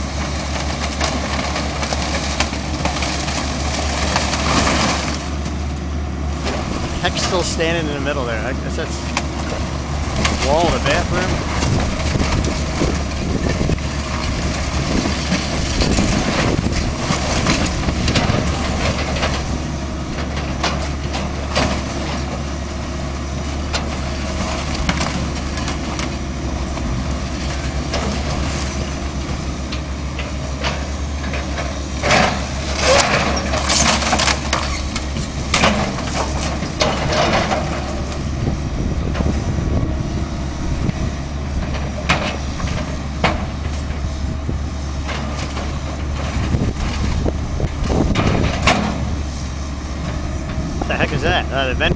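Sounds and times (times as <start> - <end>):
debris crashing: 0.0 - 5.5, 6.4 - 22.6, 30.8 - 38.2
wood and debris cracking: 0.0 - 40.0, 44.8 - 49.4
heavy demolition machine running: 0.0 - 51.9.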